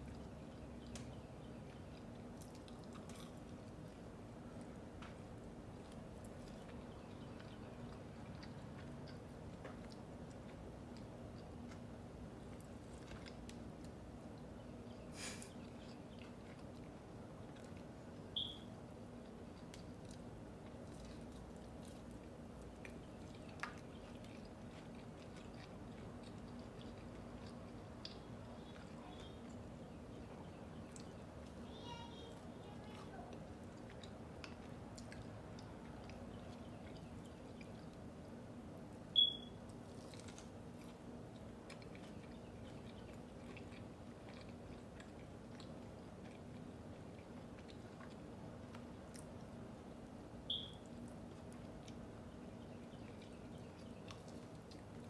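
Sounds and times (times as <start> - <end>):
faint chewing: 0.0 - 55.0
low background hum: 0.0 - 55.0
high beep: 39.2 - 39.5, 50.5 - 50.8.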